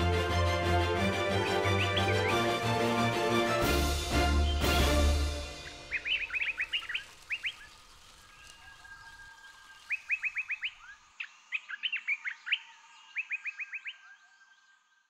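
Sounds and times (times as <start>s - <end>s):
bird chirping: 1.4s - 2.9s, 4.2s - 15.0s.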